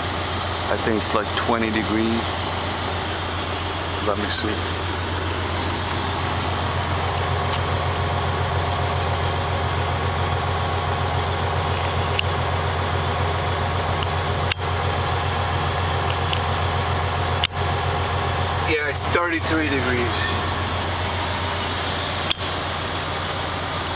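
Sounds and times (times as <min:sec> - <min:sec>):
diesel engine idling: 0:00.0 - 0:23.9.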